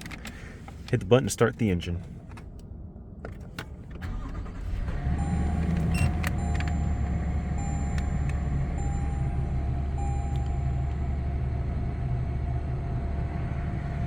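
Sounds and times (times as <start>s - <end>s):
car engine starting and idling: 0.0s - 14.0s
dashboard chime tone: 5.2s - 11.2s.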